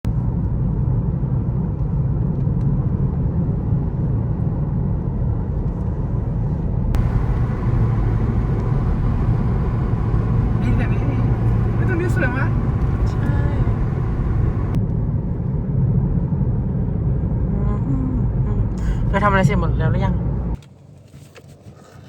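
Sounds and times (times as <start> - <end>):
moving vehicle rumble: 7.0 - 14.8.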